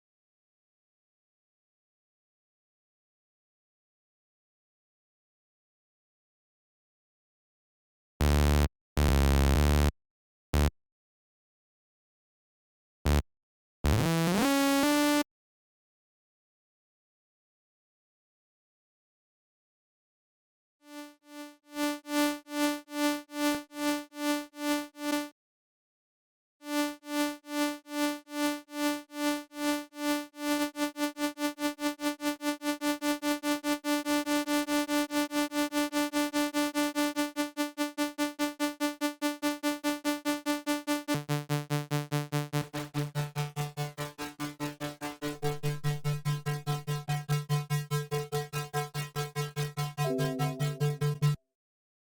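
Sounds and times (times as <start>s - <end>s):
low sustained synth note: 50.0s - 51.4s
pulsing synthesizer note: 50.0s - 51.4s.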